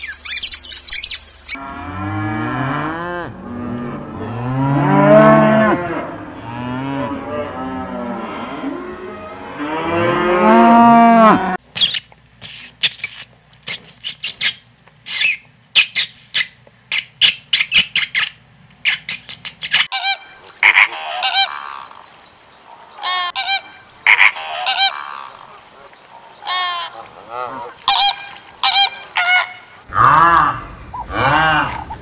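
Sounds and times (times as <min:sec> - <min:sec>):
cows mooing: 0:01.6 - 0:11.6, 0:27.2 - 0:27.8, 0:29.9 - 0:32.0
rats squeaking: 0:11.7 - 0:18.3.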